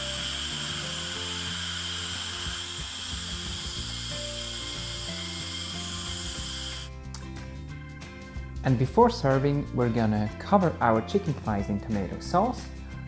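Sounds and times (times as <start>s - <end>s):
steam hissing from pressure cooker: 0.0s - 6.9s
background music: 0.0s - 13.0s.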